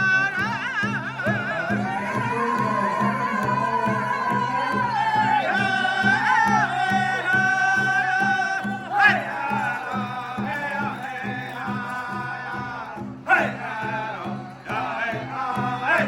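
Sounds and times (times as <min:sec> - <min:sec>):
group singing high vocables: 0:00.0 - 0:16.0
steady drumbeat: 0:00.0 - 0:16.0.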